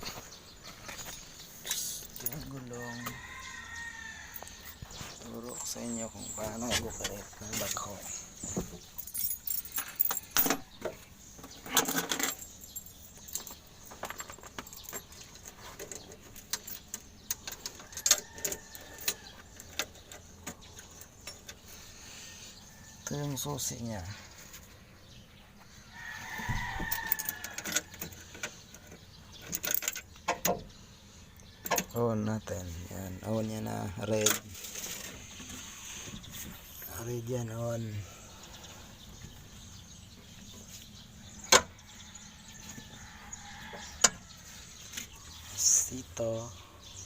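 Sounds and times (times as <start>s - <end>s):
rooster crowing: 2.7s - 4.8s, 25.9s - 28.0s, 41.8s - 44.4s
clattering rattle: 8.5s - 21.6s, 26.9s - 30.5s
metallic clicks and jingles: 8.8s - 10.8s, 11.4s - 21.6s, 26.9s - 30.5s.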